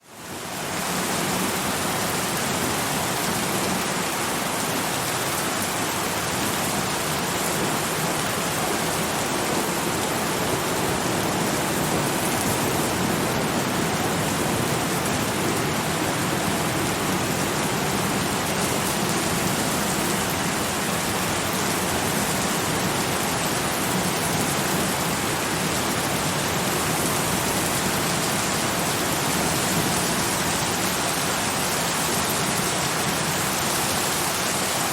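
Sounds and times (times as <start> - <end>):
dense rainfall: 0.0 - 34.9.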